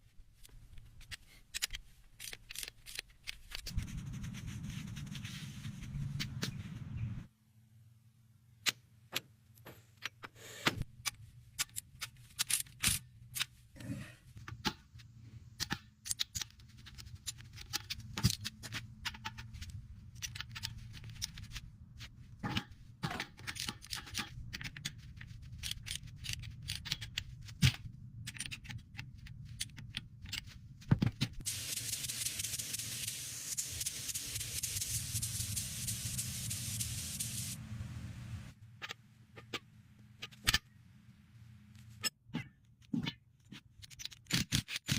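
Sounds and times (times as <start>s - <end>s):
steady low hum: 3.7s - 8.5s, 33.3s - 42.0s
spray hiss: 31.4s - 38.4s.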